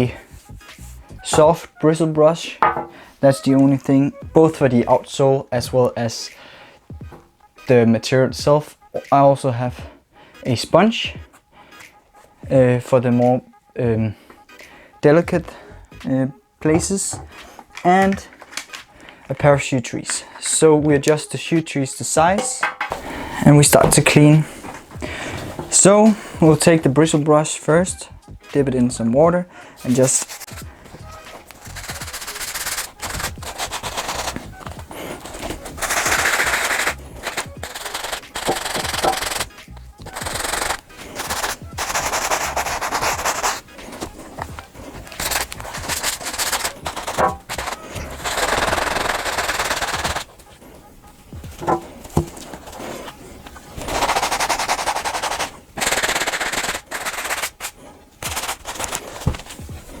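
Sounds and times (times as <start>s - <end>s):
brush scrubbing a sneaker: 29.8s - 50.4s, 51.5s - 60.0s.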